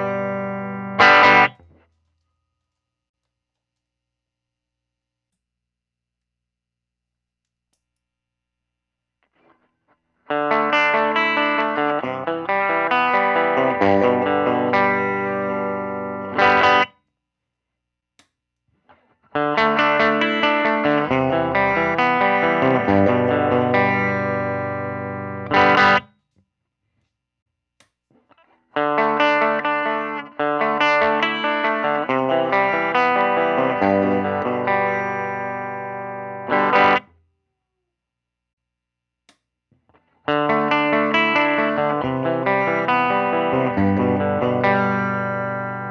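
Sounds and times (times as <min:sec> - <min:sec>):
electric guitar picked notes and chords: 0:00.0 - 0:01.6, 0:10.3 - 0:16.9, 0:19.3 - 0:26.1, 0:28.8 - 0:37.1, 0:40.3 - 0:45.9.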